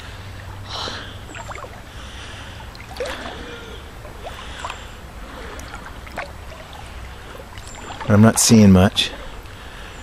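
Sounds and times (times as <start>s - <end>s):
flowing water trickle: 0.0s - 10.0s
water sloshing around legs: 0.3s - 9.7s.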